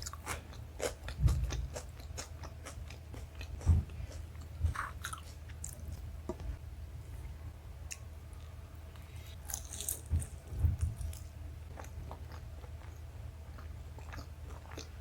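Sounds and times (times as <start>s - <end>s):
dull low thumps: 3.5s - 4.9s, 10.1s - 11.1s.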